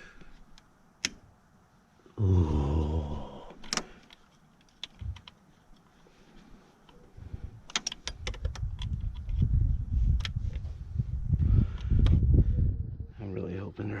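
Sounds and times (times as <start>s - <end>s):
hand tools clicking and tapping: 7.7s - 9.3s
low rumble: 9.1s - 13.3s.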